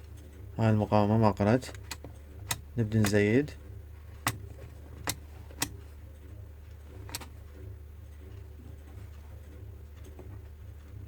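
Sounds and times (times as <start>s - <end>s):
rotary selector click: 1.7s - 3.2s, 4.2s - 5.8s, 7.0s - 7.3s.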